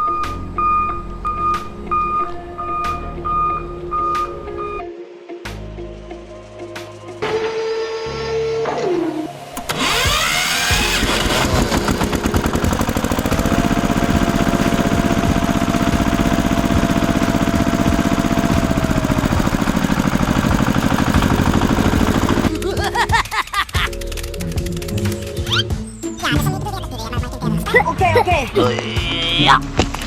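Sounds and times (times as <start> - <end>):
small engine running: 9.6 - 22.7.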